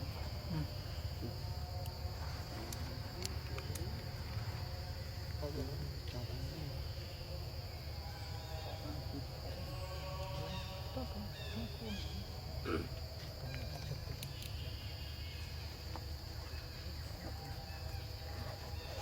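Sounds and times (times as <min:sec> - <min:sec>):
high-pitched insect drone: 0:04.1 - 0:12.6.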